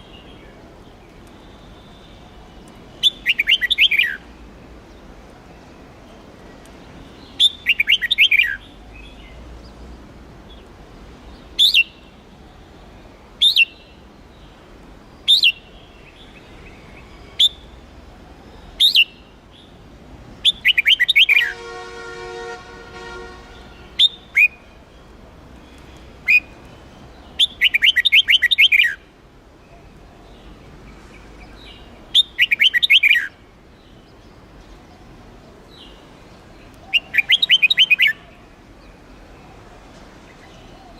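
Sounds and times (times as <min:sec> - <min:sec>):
bulbul singing: 0:01.4 - 0:04.3, 0:20.4 - 0:24.9, 0:25.7 - 0:29.1, 0:31.5 - 0:34.3, 0:36.6 - 0:38.4.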